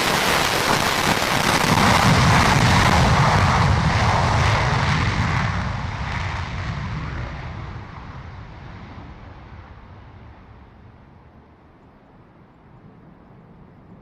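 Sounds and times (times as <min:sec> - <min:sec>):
jet engine rushing rumble: 0:00.0 - 0:14.0.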